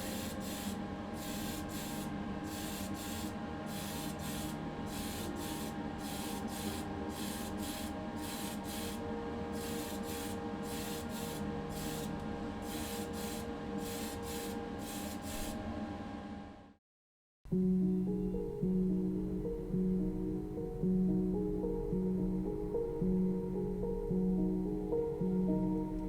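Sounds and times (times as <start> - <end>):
spray paint hissing in bursts: 0.0 - 9.0, 9.6 - 12.1, 12.7 - 15.6
steady mechanical hum: 0.0 - 16.8.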